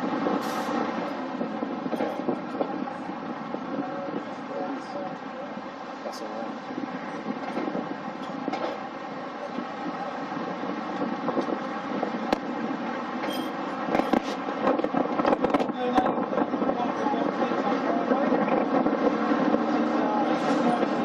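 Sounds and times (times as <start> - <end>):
train running drone: 0.0 - 21.0
wheels clicking and clattering: 6.0 - 19.5.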